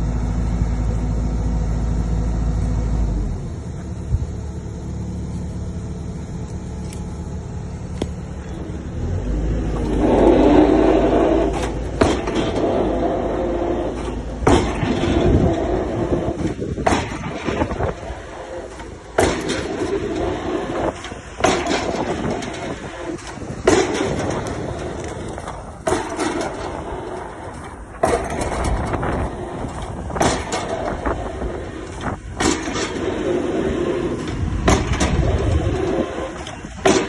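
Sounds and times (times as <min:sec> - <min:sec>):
excavator engine running: 0:00.0 - 0:37.0.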